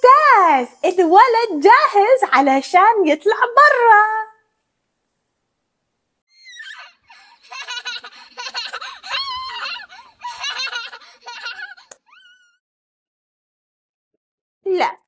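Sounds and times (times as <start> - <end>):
child giggling and squealing: 6.3 - 12.6.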